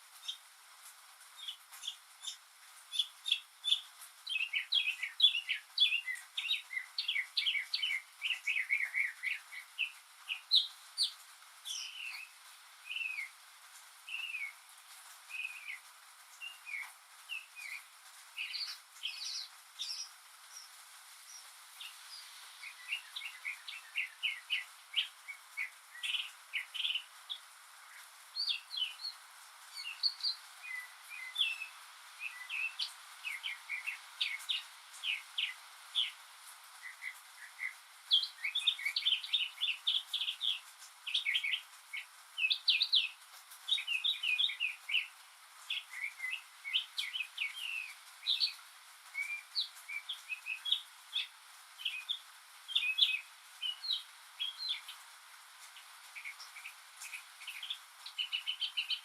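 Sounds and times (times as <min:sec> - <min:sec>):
faint steady hiss: 0:00.0 - 0:59.0
mockingbird singing: 0:01.4 - 0:12.3, 0:21.8 - 0:29.2, 0:36.8 - 0:45.1, 0:45.7 - 0:48.6, 0:49.2 - 0:55.0, 0:56.2 - 0:59.0.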